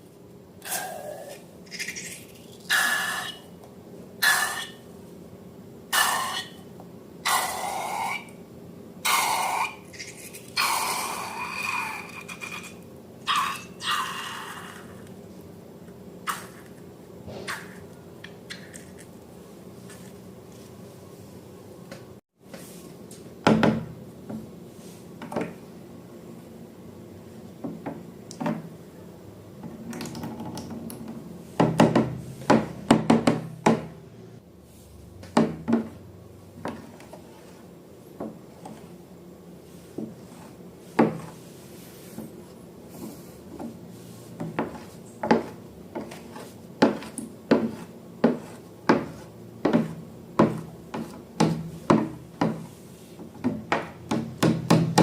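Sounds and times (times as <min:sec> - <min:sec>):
sharp knocks of hard objects: 0:53.4 - 0:55.0.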